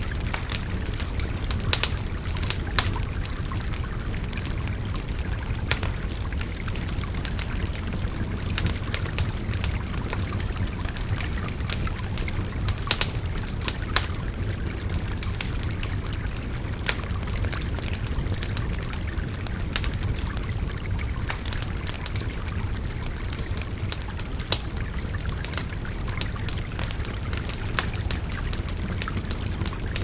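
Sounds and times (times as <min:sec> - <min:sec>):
wood fire crackling and popping: 0:00.0 - 0:30.0.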